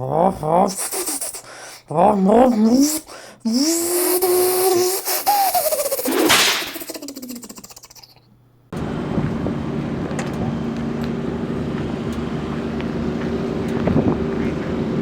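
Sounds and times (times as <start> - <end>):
car engine idling: 8.8 - 15.0.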